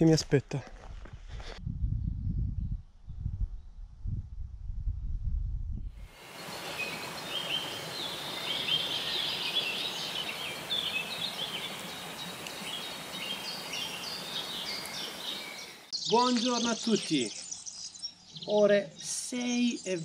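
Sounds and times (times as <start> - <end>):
steady hiss: 6.0 - 15.9
songbirds chirping and trilling: 6.1 - 20.0.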